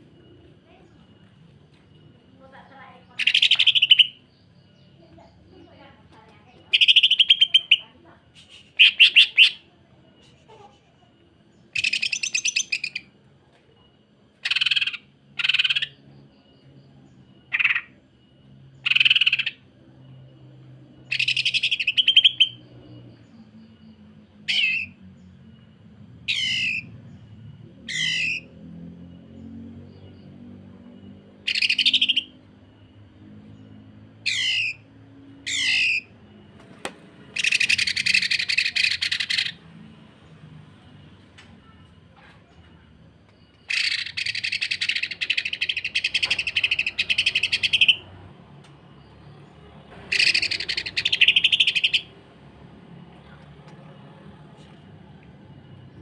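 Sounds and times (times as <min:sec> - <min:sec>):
bird giving harsh rattling calls: 0:03.2 - 0:04.2, 0:06.7 - 0:07.8, 0:08.7 - 0:09.6, 0:11.7 - 0:13.0, 0:14.4 - 0:16.0, 0:18.9 - 0:19.6, 0:24.5 - 0:25.0, 0:26.3 - 0:26.9, 0:27.9 - 0:28.5, 0:31.5 - 0:32.3, 0:34.2 - 0:34.8, 0:35.5 - 0:36.1, 0:37.4 - 0:39.6, 0:43.7 - 0:48.1, 0:50.0 - 0:52.1.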